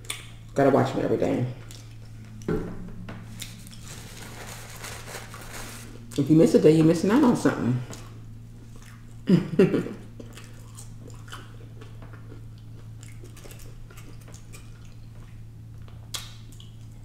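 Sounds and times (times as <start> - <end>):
wet mouth clicks: 0.0 - 0.3, 16.1 - 16.9
steady low hum: 0.0 - 17.0
close-up chewing: 7.9 - 9.2, 10.1 - 17.0.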